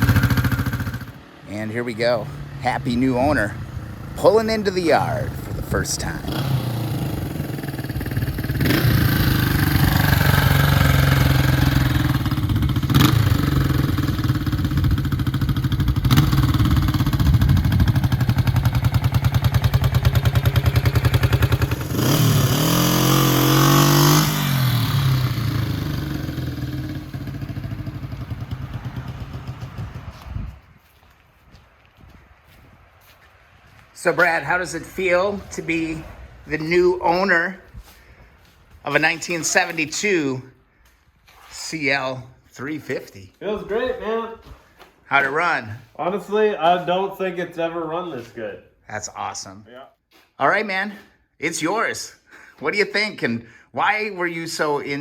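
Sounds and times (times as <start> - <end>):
motorcycle engine running and revving: 0.0 - 1.4, 2.4 - 30.6.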